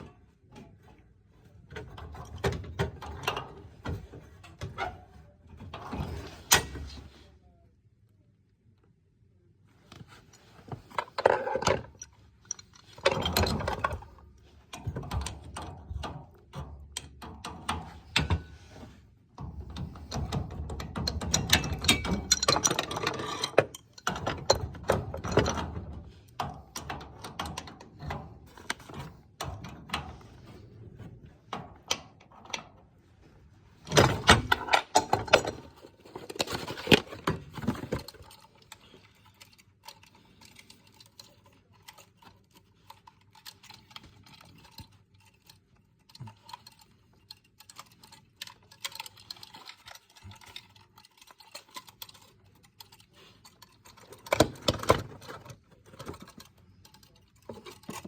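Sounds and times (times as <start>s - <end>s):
metal tools clinking and rattling: 10.4s - 16.1s, 19.5s - 30.5s, 33.8s - 58.0s.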